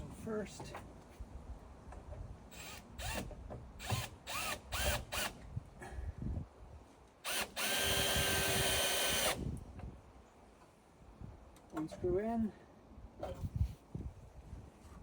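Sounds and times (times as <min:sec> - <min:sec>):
power drill driving screw into wood: 0:02.5 - 0:05.4, 0:07.2 - 0:09.4.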